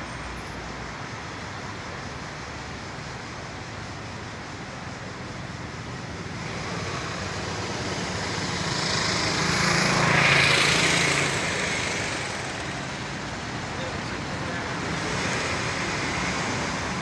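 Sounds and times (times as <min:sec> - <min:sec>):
vehicle passing by: 0:06.4 - 0:17.0.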